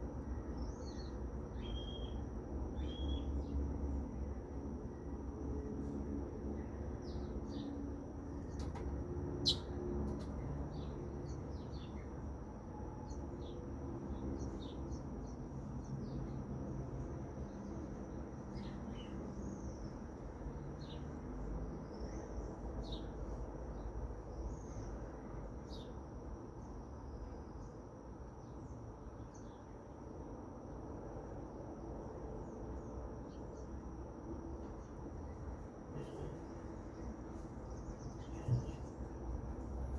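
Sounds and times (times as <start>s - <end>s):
steady high-pitched hum: 0.0s - 39.9s
birds chirping: 9.4s - 12.1s, 35.3s - 39.1s.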